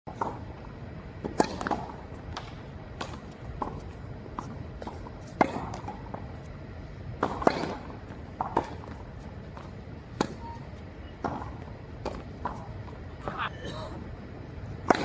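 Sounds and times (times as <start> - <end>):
tennis ball bouncing on court: 7.2 - 9.0
tennis ball struck by rackets: 7.2 - 9.0.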